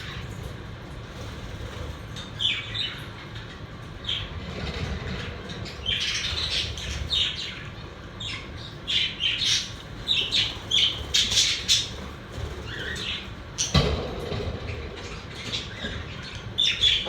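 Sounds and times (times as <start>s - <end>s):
budgerigars chirping and squawking: 1.2s - 13.9s.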